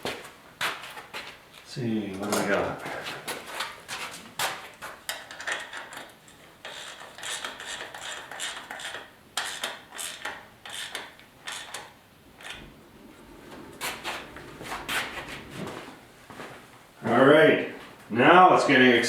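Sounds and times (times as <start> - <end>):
metal parts clicking and knocking: 5.1 - 12.6.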